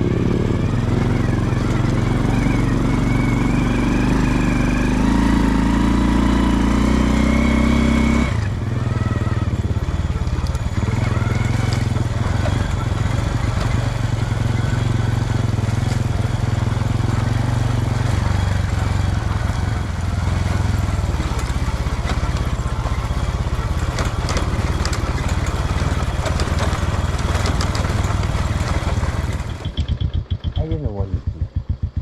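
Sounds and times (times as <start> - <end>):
small motorcycle engine running: 0.0 - 32.0.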